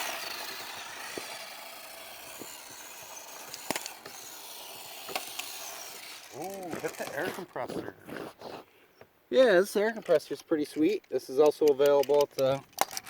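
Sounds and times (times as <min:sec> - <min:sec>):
rc truck tyres hissing: 0:00.0 - 0:08.7
sharp clicks and ticks: 0:02.2 - 0:04.3, 0:10.0 - 0:13.0.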